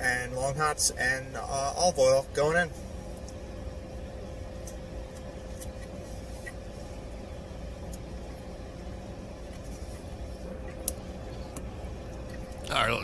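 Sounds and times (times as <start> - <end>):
faint constant hum: 0.0 - 13.0
low background rumble: 0.0 - 13.0.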